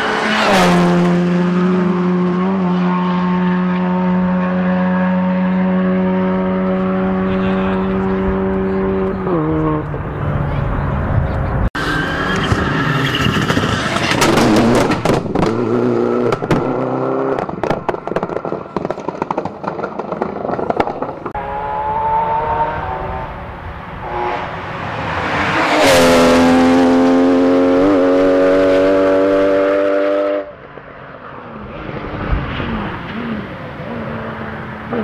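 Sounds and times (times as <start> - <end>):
rally car engine revving: 0.0 - 30.6
car passing at high revs: 0.0 - 35.0
exhaust cracks and pops: 17.3 - 21.3.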